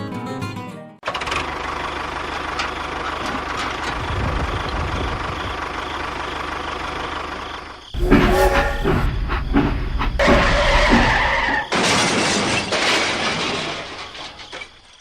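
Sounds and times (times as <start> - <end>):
louder different sound: 8.0 - 9.4.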